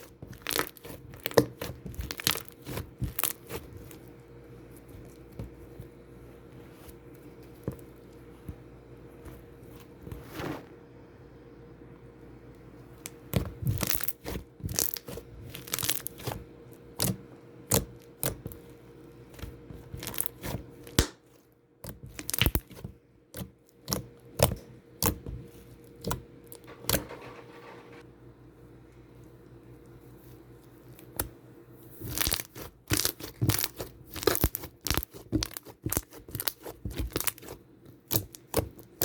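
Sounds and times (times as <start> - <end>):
slime crackling and popping: 0.3 - 4.0, 13.0 - 16.4, 22.0 - 22.7, 32.0 - 39.0.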